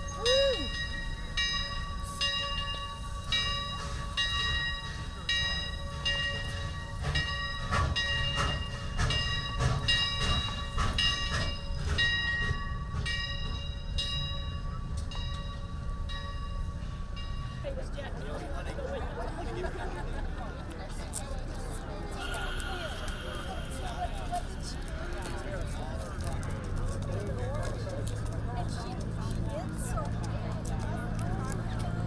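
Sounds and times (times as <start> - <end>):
locomotive bell ringing: 0.0 - 20.2, 22.0 - 26.8.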